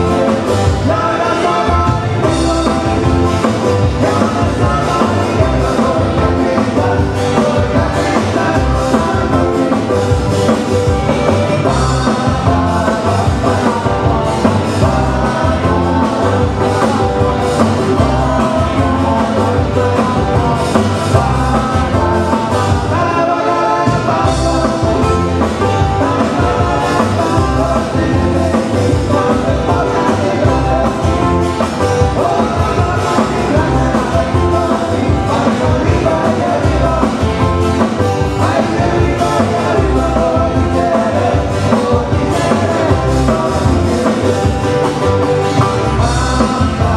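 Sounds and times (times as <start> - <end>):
guitar: 0.0 - 46.9
person singing: 0.0 - 46.9.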